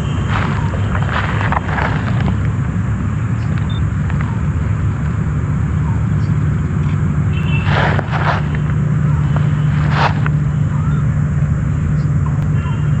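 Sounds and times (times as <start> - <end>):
rustle or crunch: 0.0 - 2.6, 7.4 - 10.5
low rumble of road traffic: 0.0 - 13.0
vehicle engine hum: 0.0 - 13.0.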